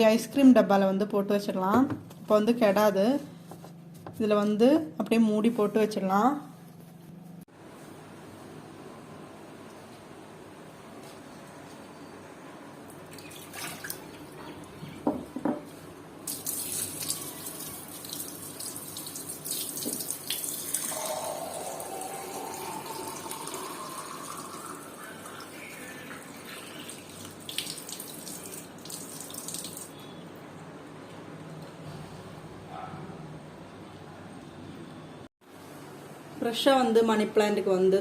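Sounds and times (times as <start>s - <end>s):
water running from tap into container: 16.3s - 29.9s.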